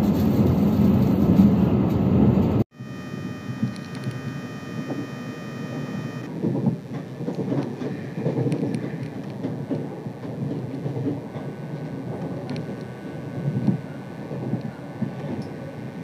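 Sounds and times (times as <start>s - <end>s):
train rumbling along track: 0.0s - 2.6s, 3.4s - 16.0s
high multi-tone whine: 2.7s - 16.0s
faint steady tone: 2.8s - 6.8s
faint clicks: 6.9s - 13.8s.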